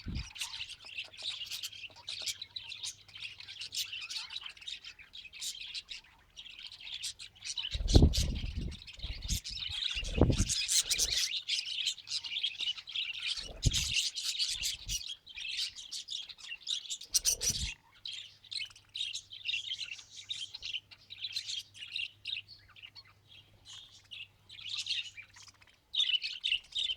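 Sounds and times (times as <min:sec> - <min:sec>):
budgerigars chattering and warbling: 0:00.0 - 0:26.9.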